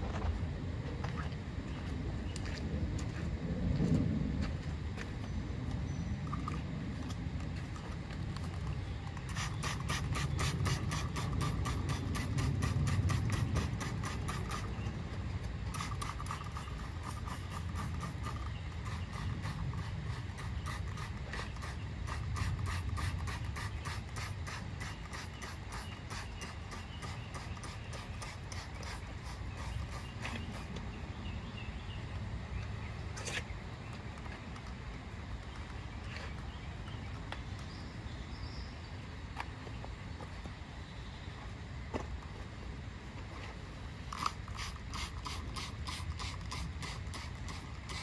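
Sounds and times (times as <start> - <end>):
steady low rumble: 0.0 - 48.0
rapid scrubbing strokes: 8.4 - 15.0, 15.7 - 30.8, 44.1 - 48.0.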